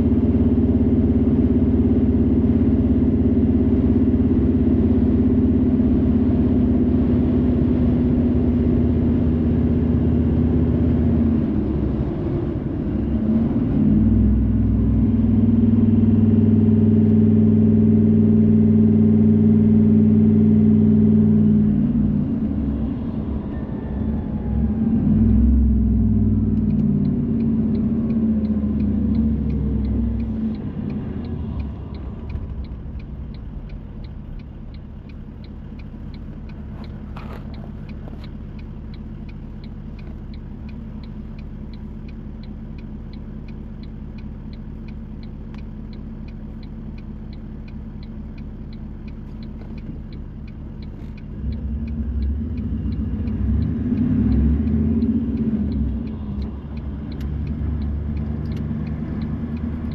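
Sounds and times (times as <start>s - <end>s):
car engine and road rumble: 0.0s - 59.9s
even ticking: 25.8s - 59.9s.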